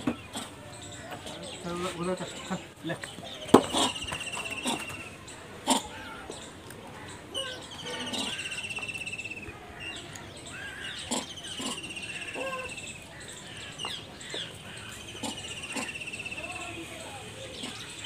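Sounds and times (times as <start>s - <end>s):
bird chirps: 0.0s - 5.4s, 7.4s - 16.8s
bird trilling: 7.3s - 16.7s.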